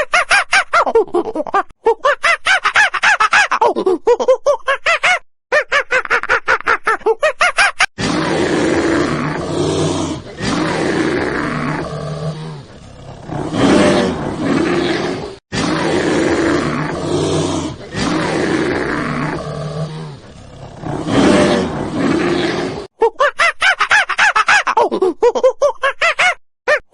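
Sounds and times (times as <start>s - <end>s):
lion roaring and growling: 8.0s - 22.9s.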